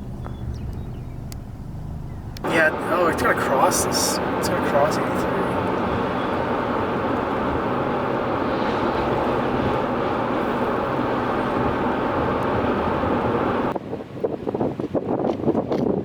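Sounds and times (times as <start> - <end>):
vehicle road and engine noise: 0.0 - 16.0
wind buffeting microphone: 0.0 - 16.0.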